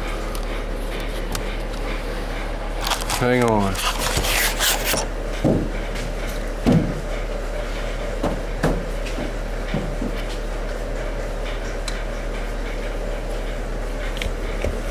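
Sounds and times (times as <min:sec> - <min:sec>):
steady low hum: 0:00.0 - 0:14.9
dull knocks and thumps: 0:05.4 - 0:07.1, 0:08.2 - 0:10.2.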